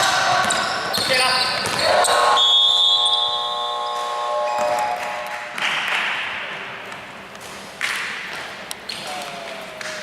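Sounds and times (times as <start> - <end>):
scoreboard buzzer blare: 1.8 - 5.6.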